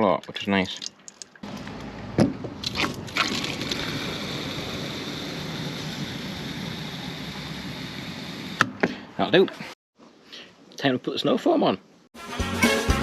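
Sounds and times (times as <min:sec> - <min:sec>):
water filling a bottle from hose: 0:02.6 - 0:07.3.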